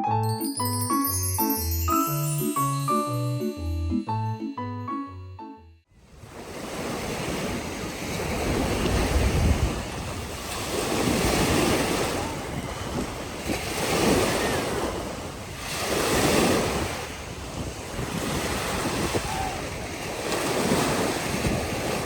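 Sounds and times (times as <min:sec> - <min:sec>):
wind buffeting microphone: 0:06.0 - 0:22.0
waves breaking on sandy beach: 0:06.1 - 0:22.0.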